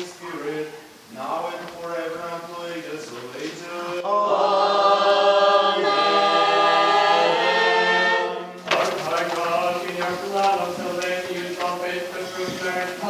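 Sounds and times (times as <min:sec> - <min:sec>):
choir singing chant: 0:03.8 - 0:13.0
man chanting: 0:08.7 - 0:13.0.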